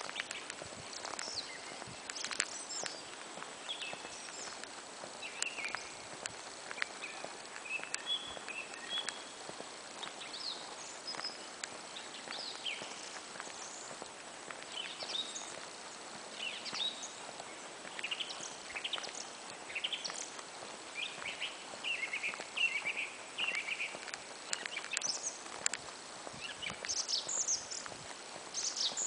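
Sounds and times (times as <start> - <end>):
songbirds chirping and singing: 0.0 - 25.8, 26.4 - 27.9, 28.5 - 29.0
faint steady outdoor hiss: 0.0 - 29.0.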